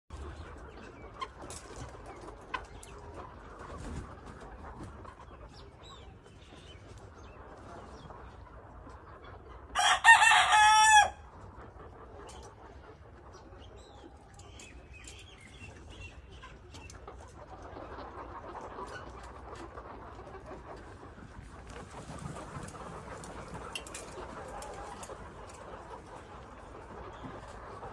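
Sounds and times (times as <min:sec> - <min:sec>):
hens clucking: 0:00.1 - 0:27.9
rooster crowing: 0:09.8 - 0:11.2.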